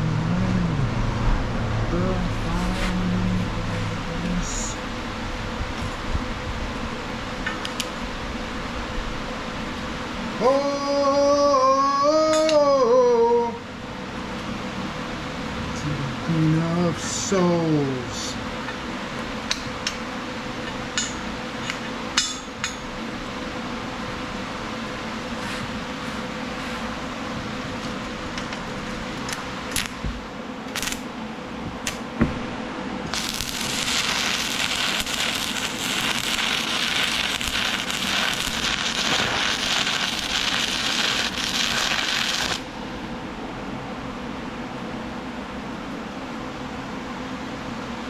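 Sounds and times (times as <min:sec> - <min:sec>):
faint steady hum: 0:00.0 - 0:48.0
welding arc crackling: 0:29.1 - 0:31.2, 0:31.8 - 0:32.1, 0:33.0 - 0:42.8.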